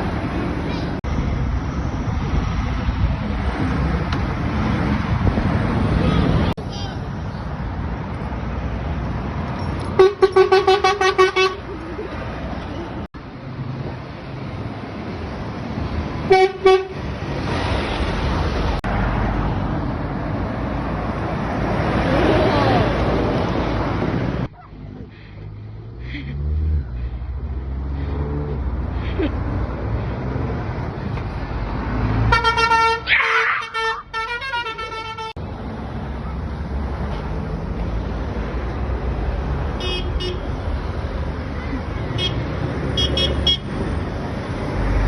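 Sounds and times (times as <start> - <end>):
road traffic noise: 0.0 - 45.0
lorry horns tooting: 9.9 - 11.8, 32.1 - 35.4.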